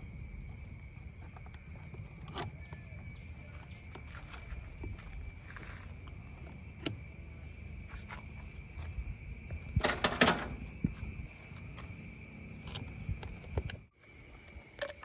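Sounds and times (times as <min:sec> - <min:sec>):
metal parts clattering: 0:09.8 - 0:10.7.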